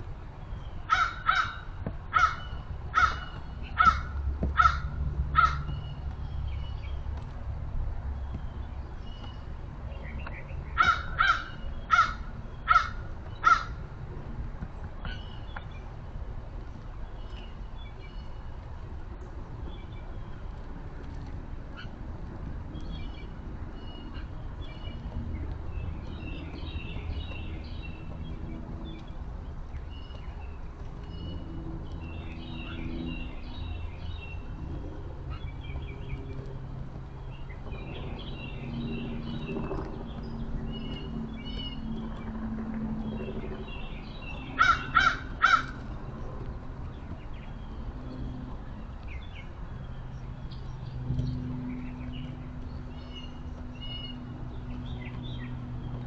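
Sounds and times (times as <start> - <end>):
low background hum: 0.0 - 56.0
small birds chirping: 0.0 - 56.0
crow cawing: 0.9 - 5.7, 10.8 - 13.8, 44.6 - 45.8.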